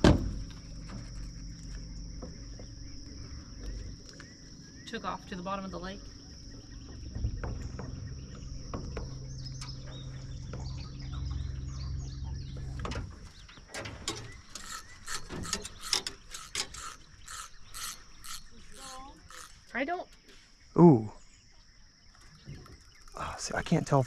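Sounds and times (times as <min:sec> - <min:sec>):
fishing reel ratchet clicking: 0:14.5 - 0:19.7.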